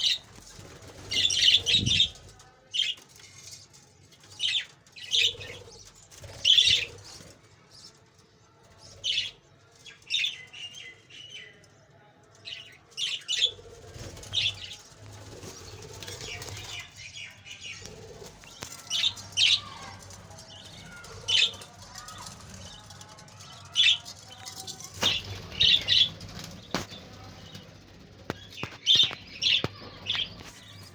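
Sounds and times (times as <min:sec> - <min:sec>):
budgies chirping: 0:00.0 - 0:02.2, 0:13.0 - 0:27.7, 0:28.3 - 0:30.9
wings fluttering: 0:00.0 - 0:02.4, 0:13.4 - 0:17.0, 0:23.8 - 0:30.9.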